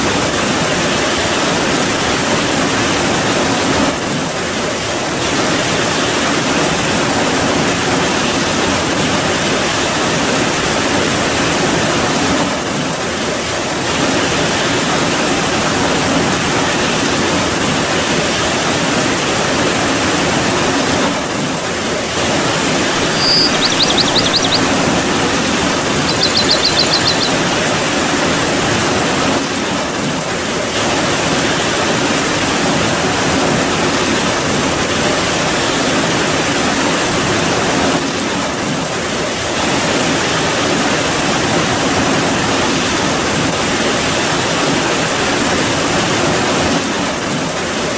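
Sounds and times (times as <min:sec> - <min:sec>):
short high trills: 0:22.9 - 0:27.6.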